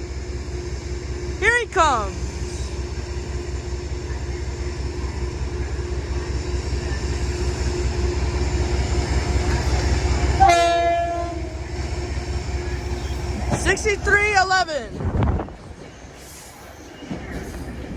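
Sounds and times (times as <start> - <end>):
train rumble approaching: 0.0 - 17.9
train horn blast: 10.4 - 11.6.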